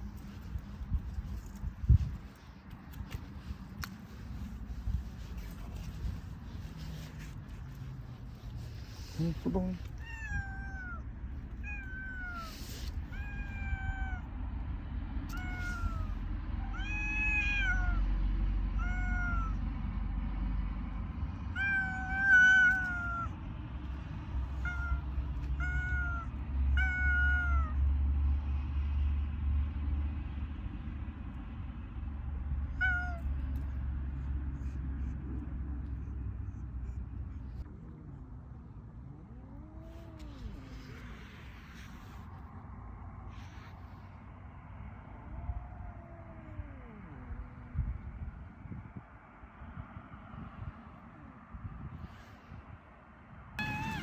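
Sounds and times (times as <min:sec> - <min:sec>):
low steady rumble: 0:00.0 - 0:54.0
cat meowing: 0:08.6 - 0:14.3, 0:15.3 - 0:18.1, 0:18.8 - 0:19.6, 0:21.5 - 0:23.4, 0:24.4 - 0:27.8, 0:32.7 - 0:33.4, 0:39.3 - 0:42.2, 0:45.2 - 0:47.6, 0:53.6 - 0:54.0.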